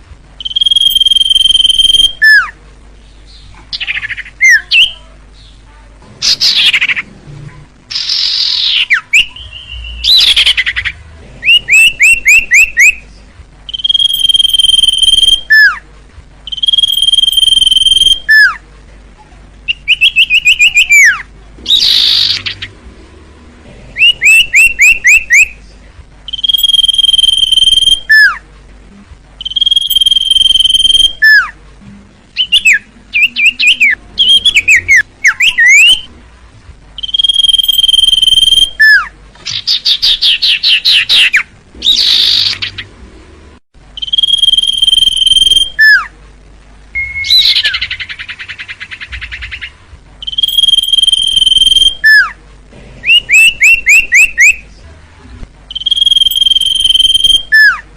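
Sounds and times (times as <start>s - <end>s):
bird buzzy rattling trills: 0.4s - 2.5s, 13.7s - 15.7s, 16.5s - 18.6s, 26.3s - 28.4s, 29.4s - 31.5s, 37.0s - 43.0s, 44.0s - 46.0s, 47.0s - 52.3s, 55.7s - 57.8s
bird whistling: 0.4s - 2.5s, 7.9s - 13.0s, 13.7s - 15.8s, 16.5s - 18.6s, 19.7s - 22.7s, 24.0s - 25.5s, 26.3s - 28.4s, 29.4s - 31.5s, 32.4s - 36.1s, 37.0s - 42.9s, 44.0s - 46.1s, 47.0s - 52.4s, 53.1s - 54.6s, 55.7s - 57.8s.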